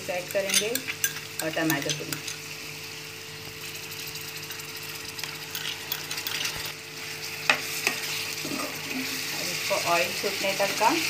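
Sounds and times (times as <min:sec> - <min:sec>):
food sizzling in a pan: 0:00.0 - 0:11.0
stirring and scraping pan: 0:03.7 - 0:10.9.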